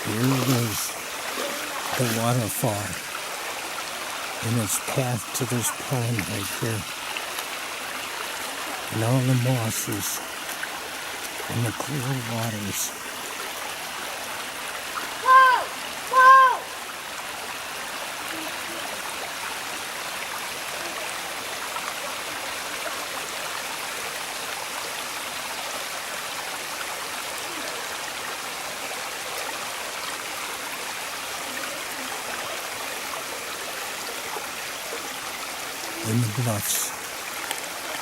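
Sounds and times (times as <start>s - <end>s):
waterfall rushing: 0.0s - 13.4s, 14.9s - 17.0s, 30.2s - 38.0s.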